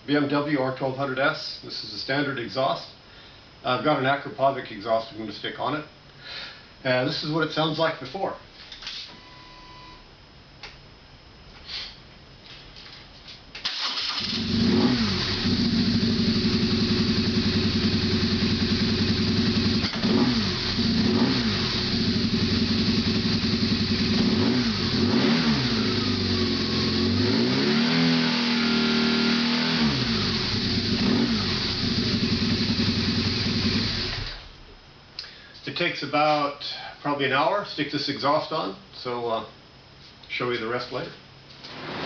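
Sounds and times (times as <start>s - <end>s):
motorcycle engine starting and idling: 13.6s - 27.2s, 29.8s - 34.6s
motorcycle engine revving: 14.1s - 34.5s.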